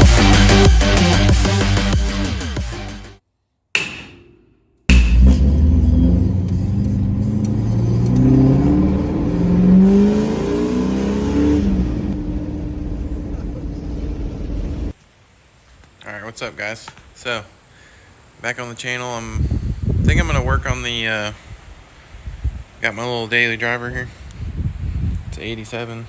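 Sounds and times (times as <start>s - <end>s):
truck engine revving: 4.9s - 14.9s.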